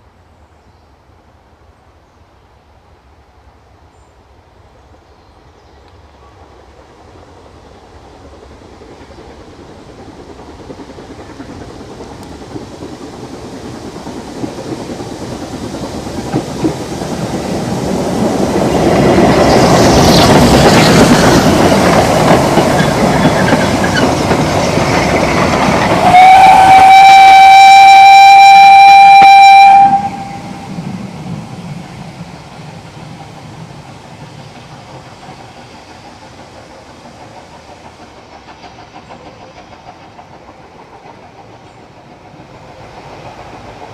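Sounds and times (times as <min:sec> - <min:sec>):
steam train rumble and rail clatter: 0:00.0 - 0:43.9
steam locomotive whistle: 0:25.8 - 0:30.9.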